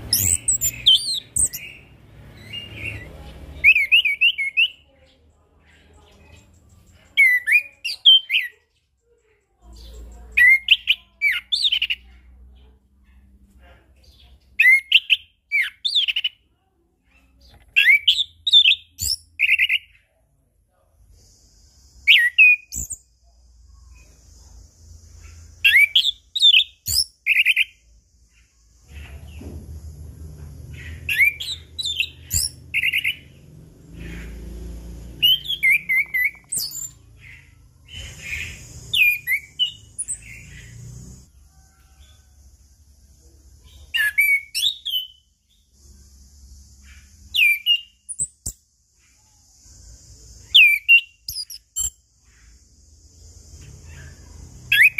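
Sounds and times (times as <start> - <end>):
thrush singing whistled phrases: 0.0 - 4.8, 22.0 - 23.1, 25.6 - 27.8, 31.1 - 33.3, 35.2 - 37.0, 38.0 - 40.8, 44.0 - 45.3, 47.3 - 48.5, 50.5 - 52.0.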